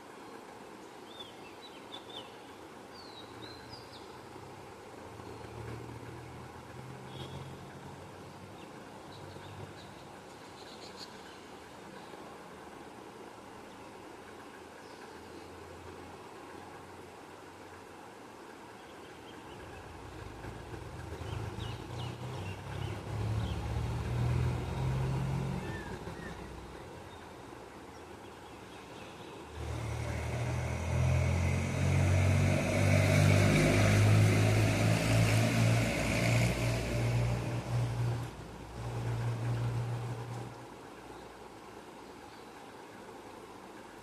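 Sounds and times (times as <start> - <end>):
road noise: 2.7 - 44.0
vehicle engine hum: 4.3 - 10.8, 19.4 - 28.7, 29.3 - 41.4.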